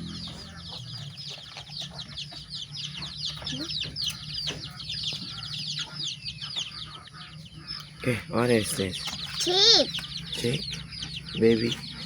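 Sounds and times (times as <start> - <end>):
steady low hum: 0.0 - 9.3
chicks peeping: 0.0 - 12.0.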